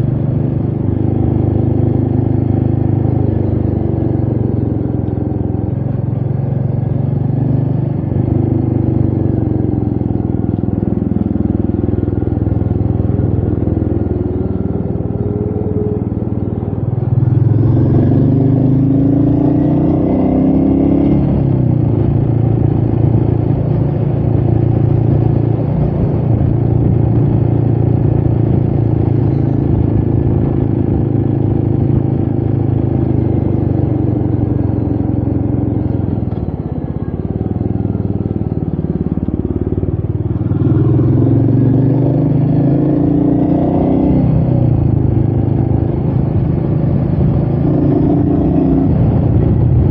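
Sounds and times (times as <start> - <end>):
motorcycle engine running: 0.0 - 49.9
wind noise on microphone: 21.2 - 32.8, 44.3 - 49.9.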